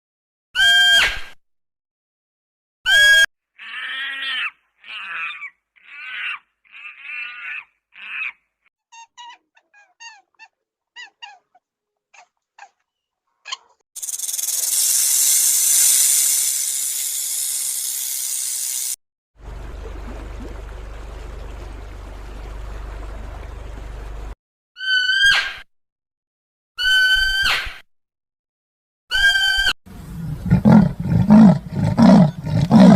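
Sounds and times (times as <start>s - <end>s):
animal calls: 2.9s - 14.8s
loud steady hiss: 14.0s - 19.0s.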